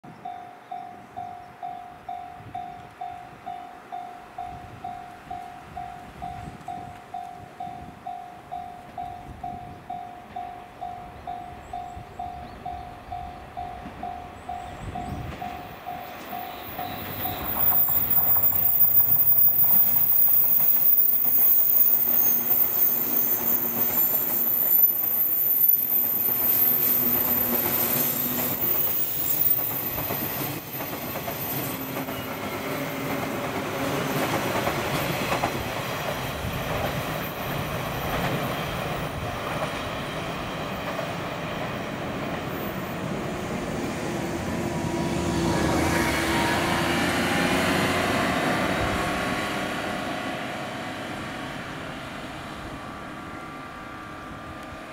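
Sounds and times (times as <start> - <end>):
train wheels clattering over rails: 13.8 - 24.7, 26.0 - 43.0
high wheel squeal: 16.1 - 34.3.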